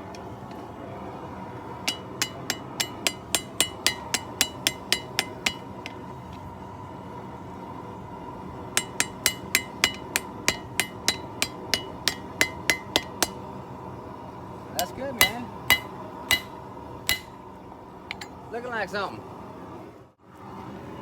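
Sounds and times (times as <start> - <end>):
steady hum: 0.0 - 20.2
hammer ringing on anvil: 1.9 - 6.0, 8.8 - 13.4, 15.2 - 17.4.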